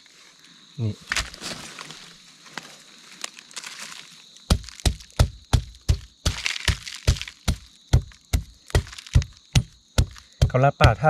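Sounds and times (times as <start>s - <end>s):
rustling: 0.0s - 10.3s
knocking blows with dull thuds: 4.5s - 11.0s.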